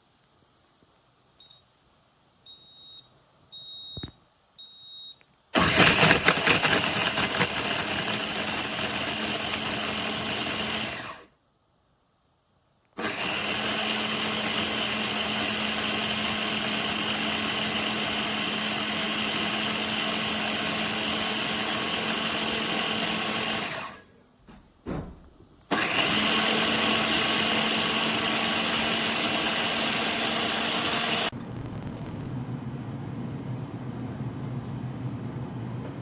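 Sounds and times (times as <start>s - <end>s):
blender motor whirring: 5.6s - 11.3s, 13.0s - 24.0s, 25.7s - 32.3s.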